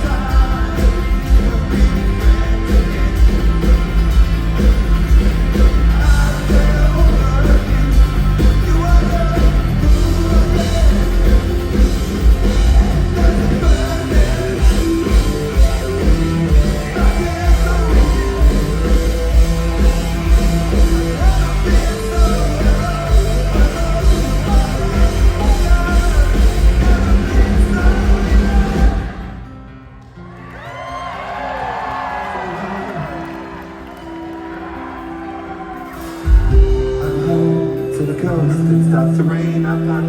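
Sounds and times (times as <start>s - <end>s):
person singing: 0.0s - 3.8s, 5.5s - 29.5s, 36.3s - 40.0s
live rock band playing: 0.0s - 30.4s, 32.2s - 40.0s.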